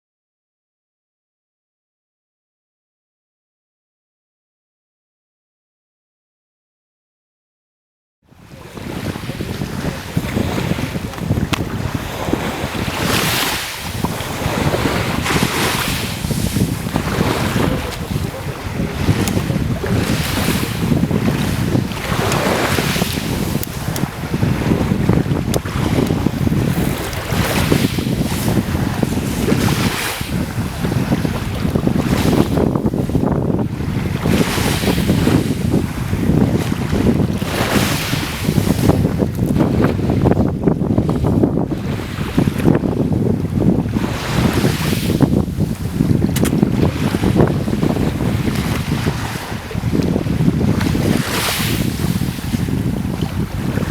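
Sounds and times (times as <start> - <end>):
wind rumbling on microphone: 8.3 - 53.9
sea water washing and hissing: 8.8 - 33.3.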